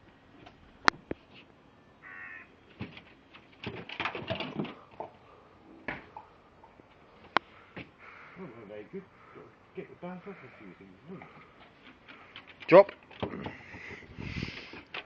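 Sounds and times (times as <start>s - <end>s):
harsh caw-like animal calls: 2.0s - 2.5s, 7.4s - 11.6s.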